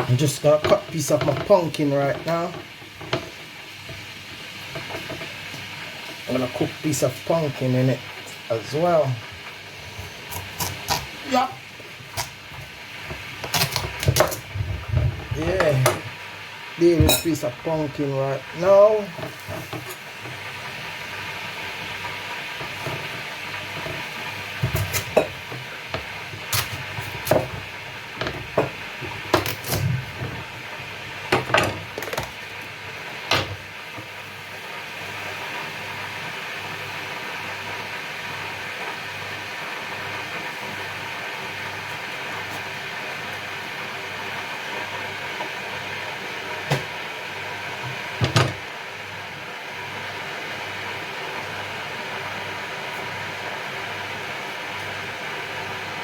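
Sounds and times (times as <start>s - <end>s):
steady hiss: 0.0s - 13.5s, 15.2s - 31.4s.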